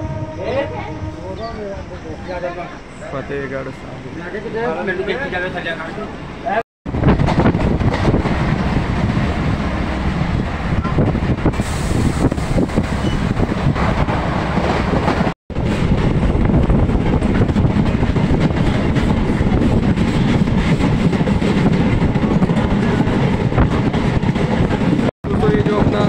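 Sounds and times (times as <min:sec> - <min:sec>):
train wheels rumbling on rails: 0:06.9 - 0:26.0.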